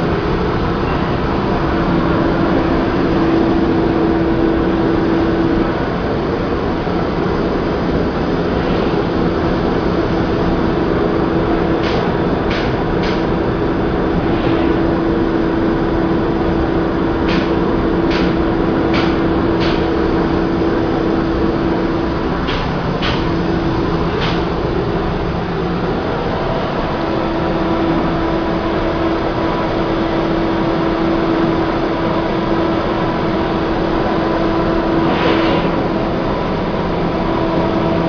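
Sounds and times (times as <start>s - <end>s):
machine hum with held tone: 0.0s - 12.5s.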